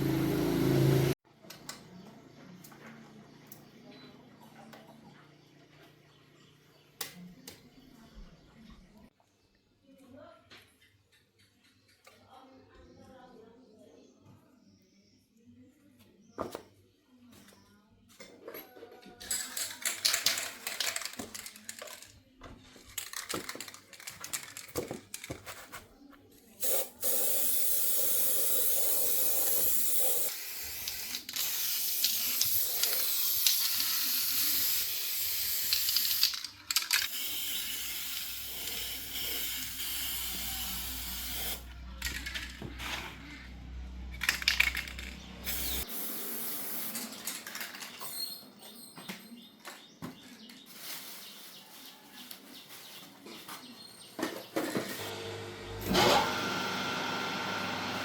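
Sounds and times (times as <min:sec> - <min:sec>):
compressed air hissing from nozzle: 0:26.6 - 0:36.3, 0:37.1 - 0:41.7, 0:45.5 - 0:46.9.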